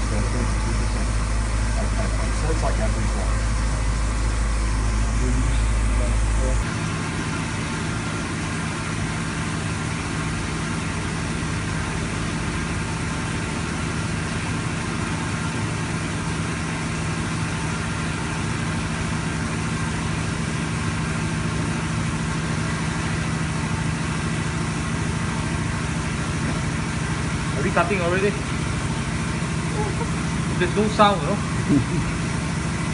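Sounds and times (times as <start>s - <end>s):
milling machine humming: 0.0s - 32.9s.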